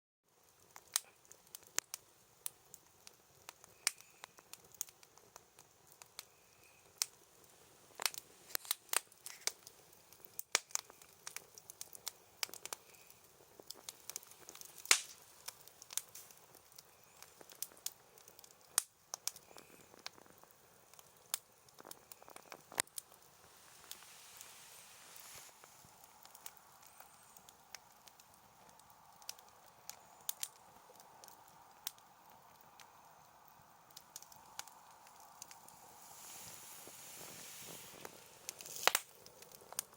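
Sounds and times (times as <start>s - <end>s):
bonfire crackling and popping: 0.3s - 39.9s.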